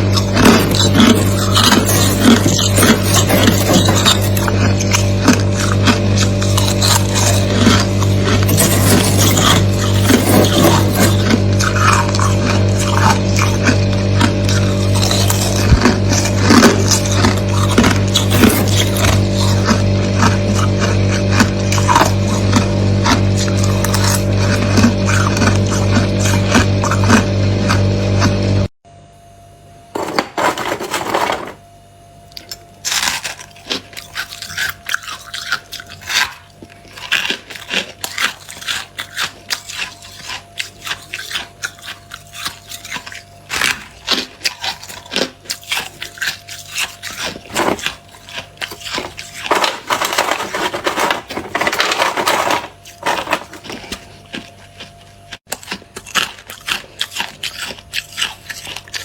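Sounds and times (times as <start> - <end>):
frost being scraped: 0.0 - 22.4, 46.6 - 54.2
freezer frost crunching: 0.0 - 28.7, 30.0 - 31.7, 32.3 - 59.0.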